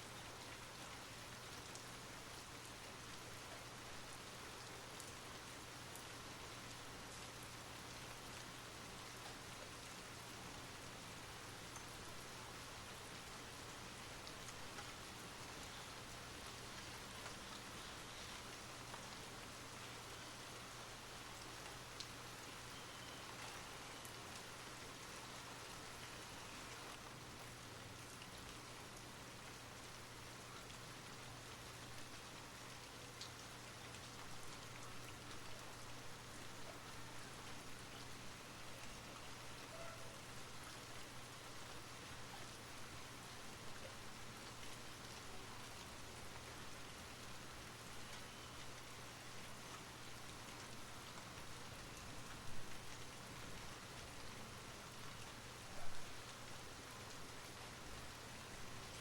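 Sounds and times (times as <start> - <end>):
soft rain falling: 0.0 - 59.0.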